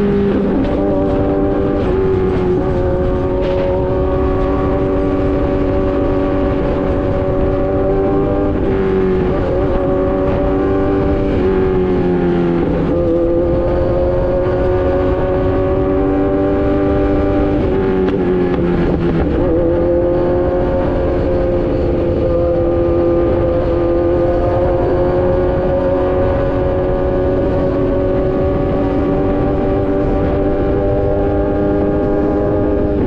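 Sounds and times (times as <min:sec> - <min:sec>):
motorcycle engine while riding: 0:00.0 - 0:33.0.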